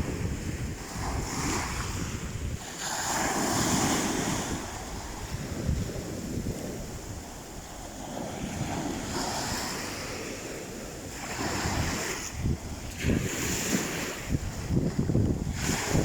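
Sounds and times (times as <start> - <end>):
sea waves washing on shore: 0.0 - 16.0
wind buffeting microphone: 0.0 - 16.0.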